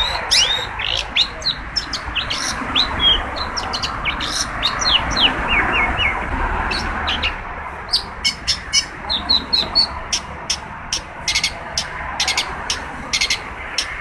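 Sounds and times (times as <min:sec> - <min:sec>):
bird singing harsh notes: 0:00.0 - 0:14.0.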